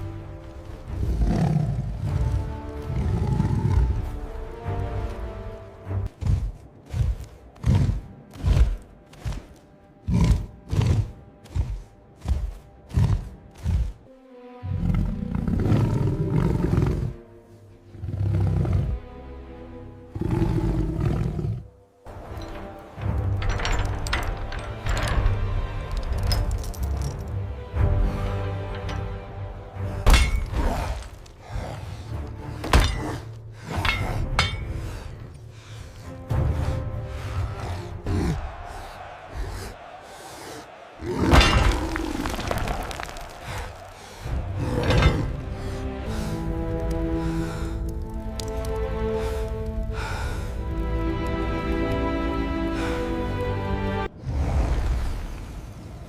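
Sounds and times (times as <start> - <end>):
background music: 0.0 - 55.1
loud animal roar: 40.9 - 45.4.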